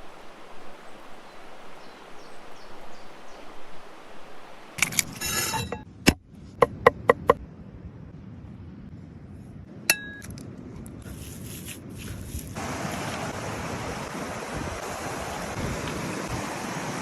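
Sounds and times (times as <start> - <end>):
kitchenware clinking: 4.8 - 5.8
sharp knocks: 6.1 - 7.4.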